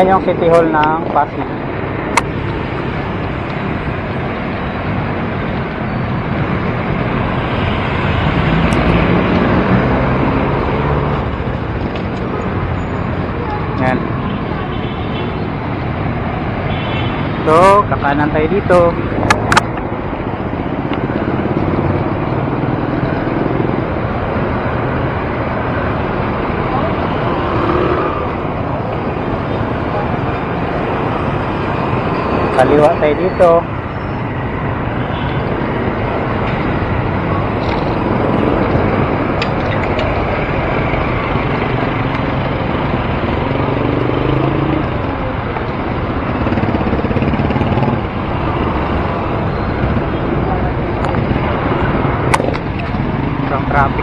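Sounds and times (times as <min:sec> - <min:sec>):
wind and road noise: 0:00.0 - 0:54.0
motor vehicle engine running close: 0:35.4 - 0:54.0.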